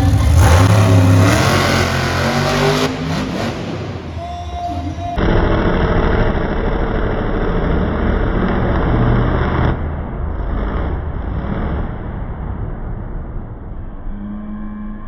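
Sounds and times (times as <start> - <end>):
monster truck engines running: 0.0 - 15.0.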